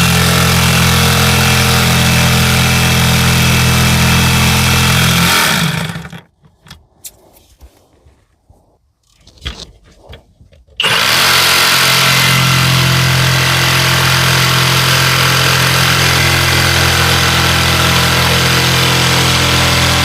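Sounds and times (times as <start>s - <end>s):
jigsaw cutting wood: 0.0s - 6.2s, 10.8s - 20.0s.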